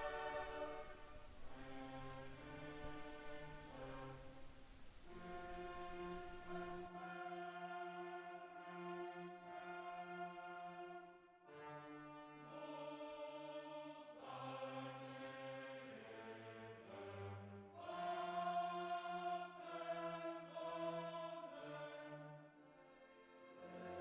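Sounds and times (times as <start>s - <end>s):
slow sustained chords: 0.0s - 6.9s.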